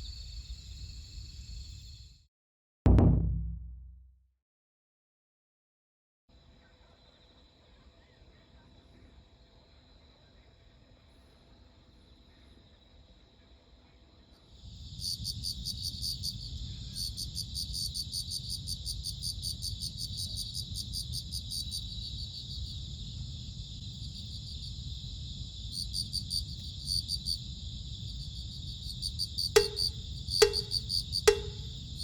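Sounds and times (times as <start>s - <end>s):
crickets chirping: 0.0s - 2.2s, 14.0s - 32.0s
low rumble: 2.9s - 4.0s
sharp knocks: 2.9s - 4.0s, 29.6s - 31.7s.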